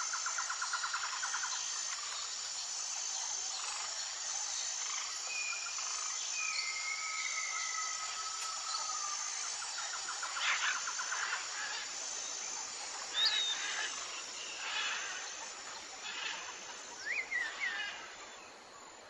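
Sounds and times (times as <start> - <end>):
short high insect chirp: 0.0 - 18.9
insects hissing: 0.0 - 19.0
long whistled calls: 13.1 - 14.0.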